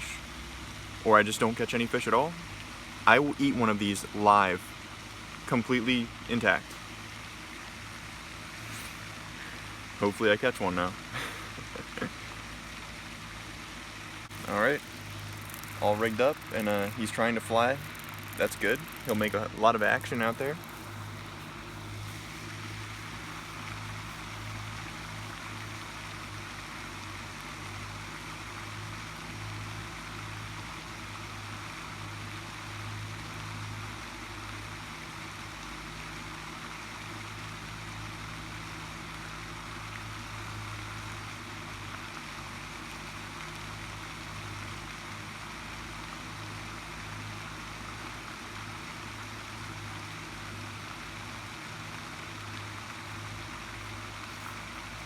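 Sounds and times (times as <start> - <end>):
steady hiss: 0.0 - 29.0, 37.0 - 55.0
low hum: 10.9 - 26.6.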